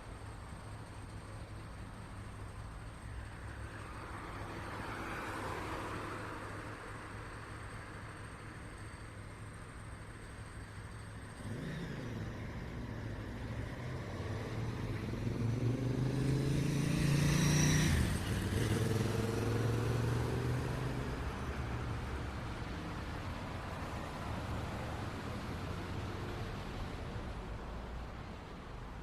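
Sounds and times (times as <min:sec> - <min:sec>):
street traffic hum: 0:00.0 - 0:29.0
vehicle engine passing by: 0:11.4 - 0:23.0.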